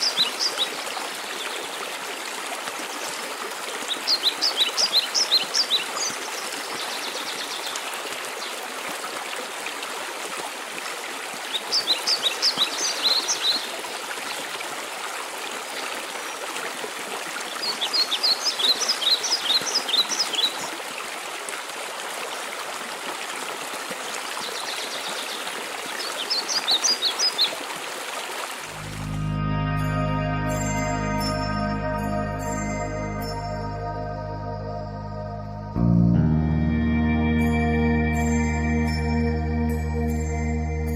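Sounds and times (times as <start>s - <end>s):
waterfall rushing: 28.6s - 34.5s.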